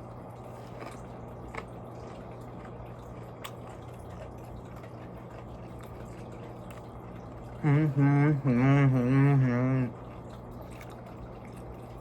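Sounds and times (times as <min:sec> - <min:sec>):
wet eating clicks: 0:00.7 - 0:07.4.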